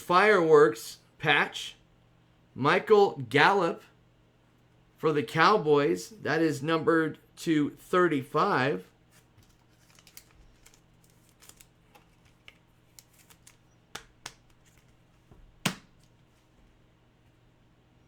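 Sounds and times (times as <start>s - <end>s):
trading cards rustling and clicking: 9.1s - 16.2s
card snap: 12.4s - 14.9s, 15.6s - 16.1s.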